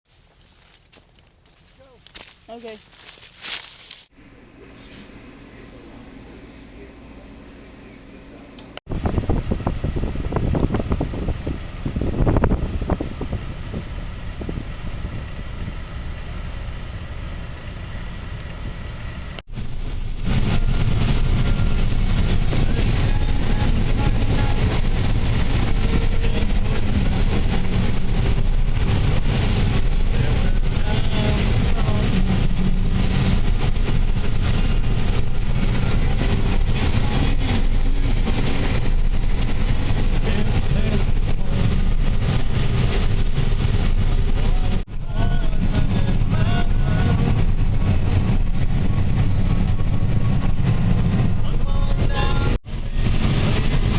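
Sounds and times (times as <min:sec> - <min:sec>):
loud low rumbling: 0:02.8 - 0:53.9
wind on microphone: 0:08.9 - 0:53.9.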